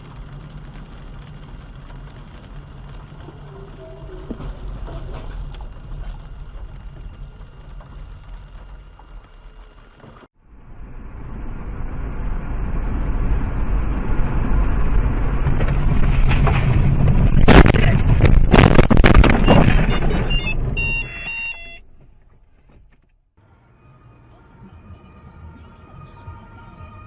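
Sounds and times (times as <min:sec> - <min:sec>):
moving car: 0:00.0 - 0:27.0
short stepped electronic tones: 0:19.4 - 0:21.8.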